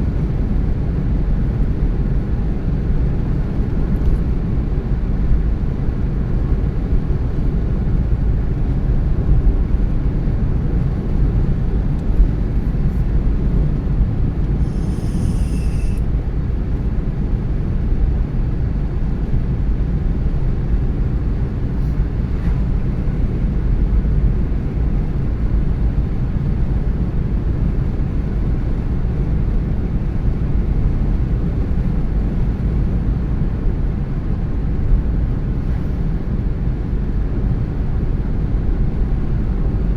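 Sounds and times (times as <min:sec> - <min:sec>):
car tyre road rumble: 0:00.0 - 0:39.9
high hiss: 0:14.6 - 0:16.0.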